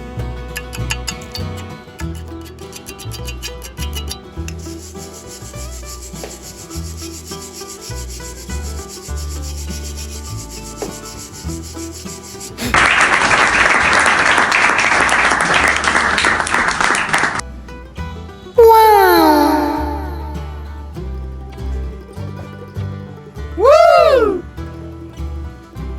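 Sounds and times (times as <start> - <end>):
background music: 0.0 - 15.5, 17.4 - 25.9.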